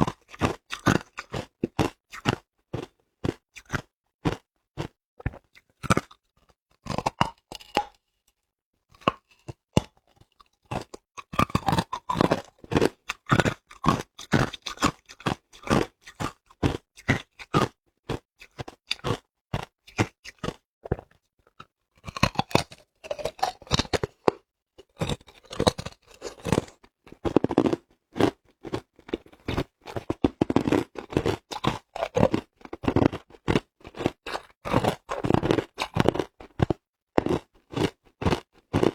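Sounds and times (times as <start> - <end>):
person crunching ice: 10.8 - 17.3, 22.0 - 38.9.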